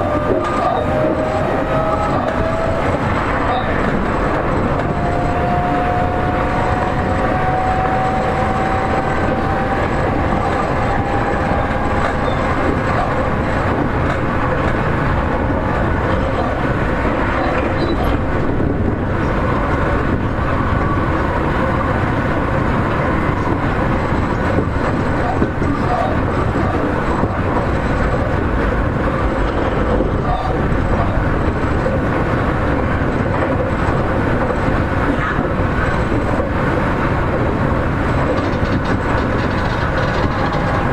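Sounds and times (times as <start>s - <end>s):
train wheels rumbling: 0.0s - 40.9s
electric motor whine: 4.1s - 15.8s.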